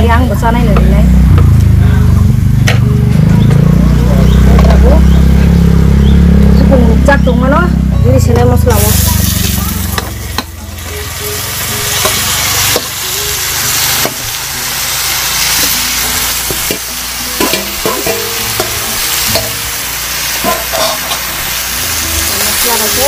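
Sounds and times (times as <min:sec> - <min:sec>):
food sizzling in a pan: 0:08.7 - 0:23.0
spatula scraping and knocking pan: 0:17.4 - 0:19.6, 0:20.4 - 0:21.4.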